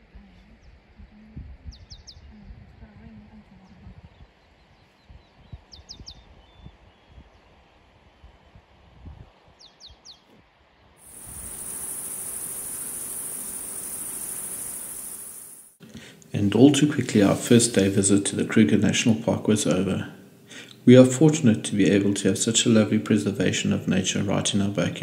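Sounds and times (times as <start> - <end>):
faint low rumble: 0.0 - 5.6
high-pitched insect buzz: 11.0 - 15.8.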